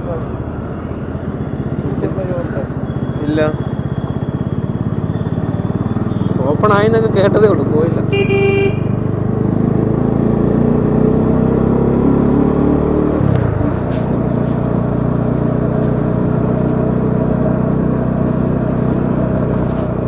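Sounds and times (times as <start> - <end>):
motorcycle engine running: 1.4 - 11.8.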